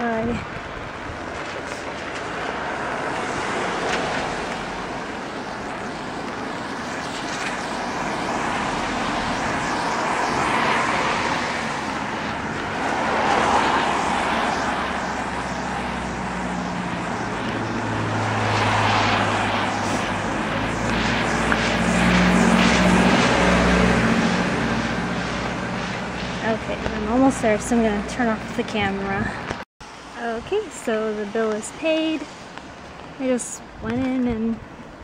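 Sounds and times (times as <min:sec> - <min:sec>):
low engine hum: 0:00.0 - 0:29.6
tyre hiss on wet road: 0:01.2 - 0:27.0.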